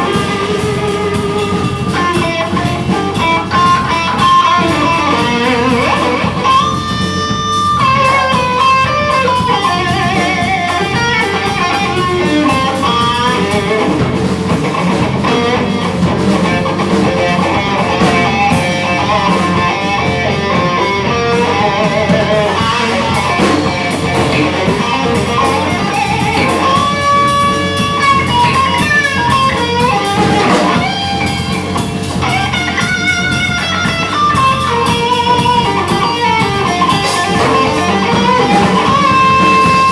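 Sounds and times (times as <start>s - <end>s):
bass: 0.0s - 39.9s
electric guitar melody: 0.0s - 39.9s.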